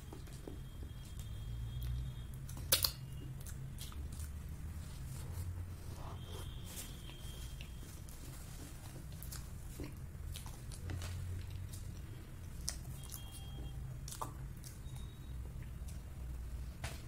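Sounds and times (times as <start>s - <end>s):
low steady hum: 0.0s - 17.0s
person chewing: 0.1s - 16.1s.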